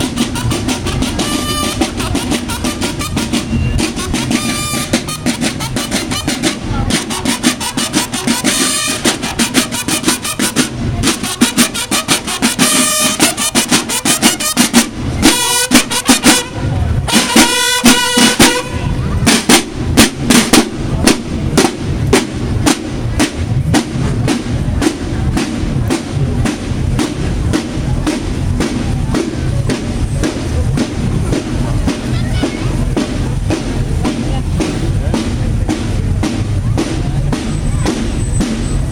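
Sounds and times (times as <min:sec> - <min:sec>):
brassy horn notes: 0:00.0 - 0:19.3
drums playing fast beat: 0:00.0 - 0:38.9.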